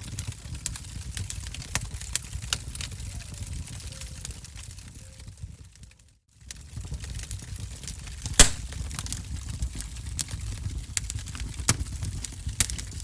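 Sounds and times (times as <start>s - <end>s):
fire crackling in a fireplace: 9.5s - 13.0s.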